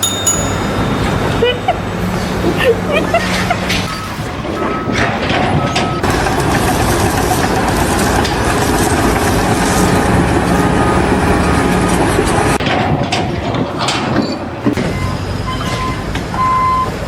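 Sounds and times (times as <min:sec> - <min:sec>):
heavy machine running loudly: 0:03.7 - 0:13.2
reversing alarm beeping: 0:14.8 - 0:17.0.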